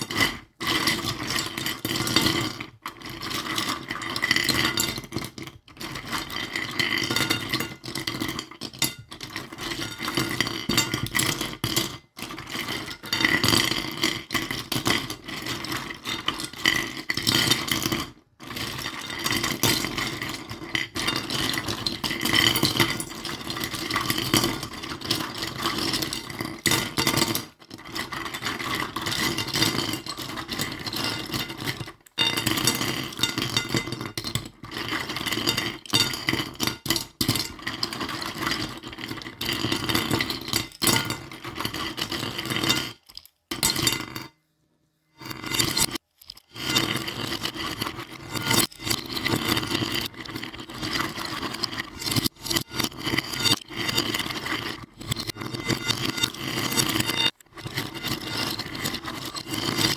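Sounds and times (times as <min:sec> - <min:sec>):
small toys clinking and rattling: 0:18.5 - 0:43.7, 0:45.4 - 0:59.9.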